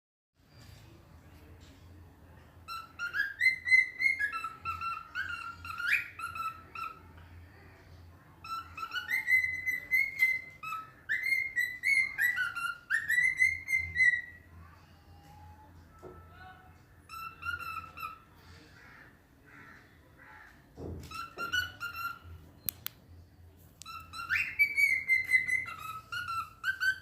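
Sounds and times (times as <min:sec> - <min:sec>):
cockatiel whistling a song: 0:02.6 - 0:07.1, 0:08.4 - 0:16.3, 0:17.0 - 0:18.4, 0:21.0 - 0:22.9, 0:23.8 - 0:27.0.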